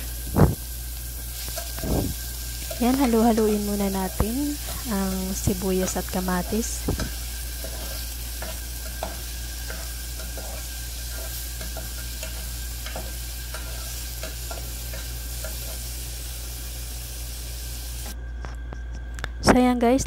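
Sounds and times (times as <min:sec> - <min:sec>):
onion and tomato sizzling in oil: 0:00.0 - 0:18.2
spatula scraping and tapping a pot: 0:05.8 - 0:15.8.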